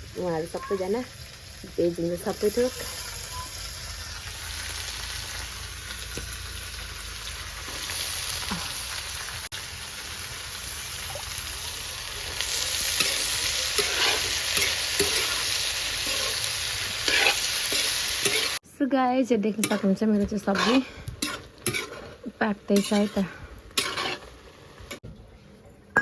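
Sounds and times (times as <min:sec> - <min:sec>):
vegetables sizzling in oil: 0:00.0 - 0:25.0
spoon scraping pan: 0:13.0 - 0:18.6, 0:19.6 - 0:24.4.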